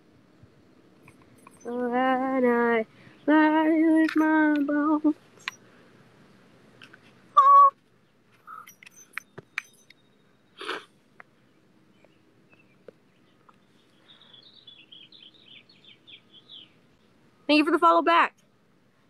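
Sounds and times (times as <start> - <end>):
bird singing high chirps: 1.4 - 1.9, 7.4 - 10.8, 11.4 - 16.8.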